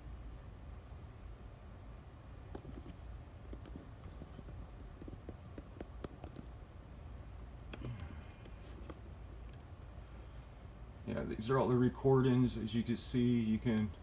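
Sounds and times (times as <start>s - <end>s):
low steady hum: 0.0s - 14.0s
mouse and keyboard clicking: 2.5s - 6.5s.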